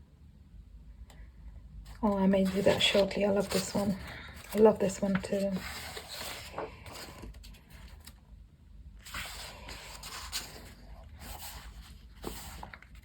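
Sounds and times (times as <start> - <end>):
paper pages turning: 1.9 - 8.3, 9.0 - 13.0.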